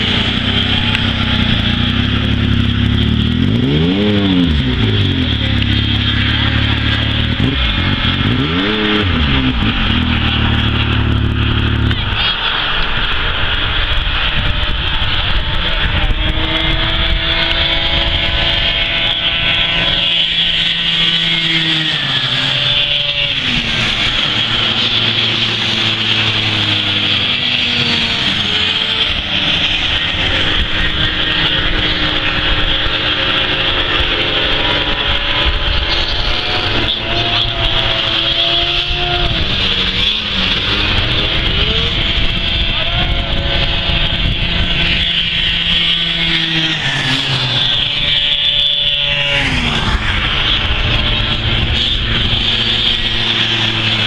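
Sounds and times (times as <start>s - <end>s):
loud close engine: 0.0s - 54.0s
snowmobile engines racing: 0.0s - 54.0s.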